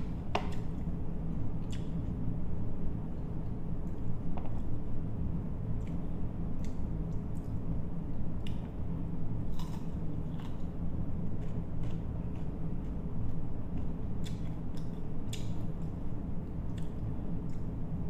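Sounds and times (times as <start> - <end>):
low steady hum: 0.0 - 18.0
crunchy chewing: 9.5 - 16.0, 16.7 - 17.7.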